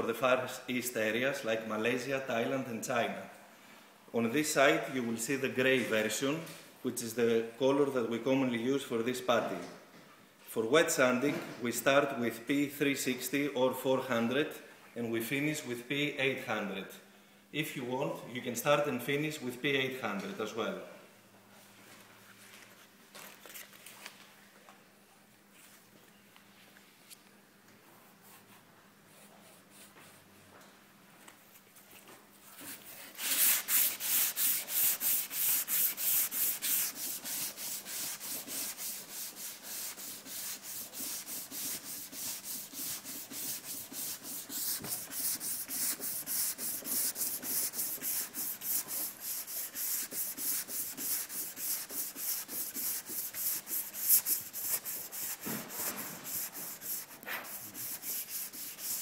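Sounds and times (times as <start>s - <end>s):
sandpaper sanding by hand: 32.7s - 59.0s.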